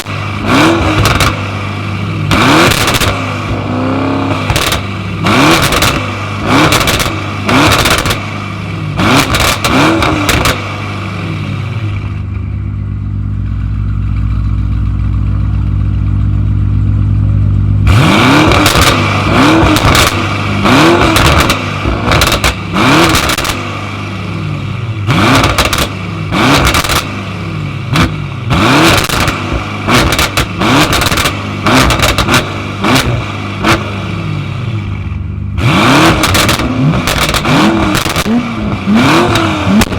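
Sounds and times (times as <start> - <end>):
car engine revving and idling: 0.0 - 39.9
exhaust pops and cracks: 0.9 - 1.4, 2.3 - 3.3, 4.4 - 5.0, 5.6 - 8.2, 9.2 - 10.6, 18.5 - 20.3, 21.0 - 23.7, 25.4 - 26.0, 26.6 - 27.2, 28.8 - 33.8, 36.2 - 39.9.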